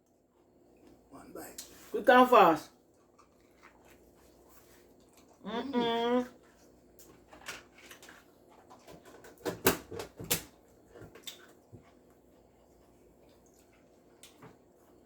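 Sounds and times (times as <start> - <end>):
chewing corn crunches: 2.8 - 5.5.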